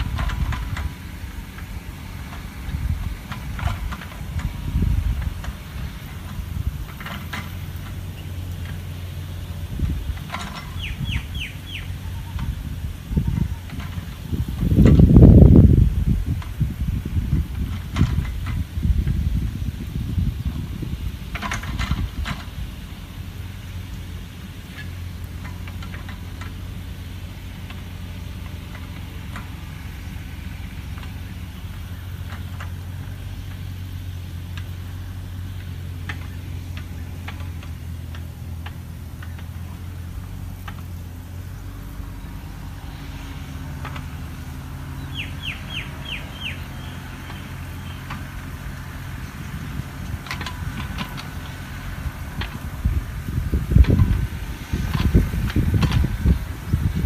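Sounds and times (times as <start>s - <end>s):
steady low rumble: 0.0s - 57.0s
bird chirps: 10.6s - 12.4s, 45.0s - 48.1s.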